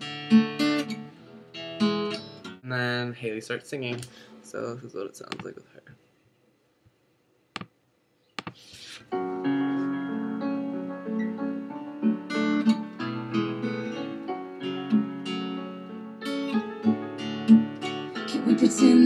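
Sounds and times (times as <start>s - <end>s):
acoustic guitar strumming: 0.0s - 2.6s, 9.1s - 19.0s.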